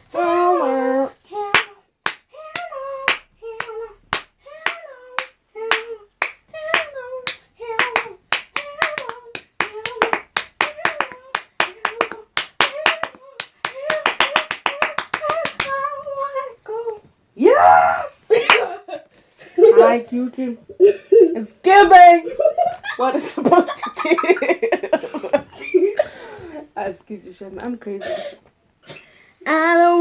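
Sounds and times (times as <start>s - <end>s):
hand claps: 1.5s - 15.9s, 18.3s - 18.7s.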